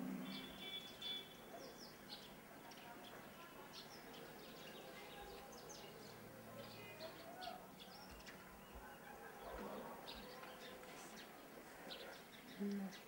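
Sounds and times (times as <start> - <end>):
faint distant voices: 0.0 - 13.0
small birds chirping: 0.0 - 13.0.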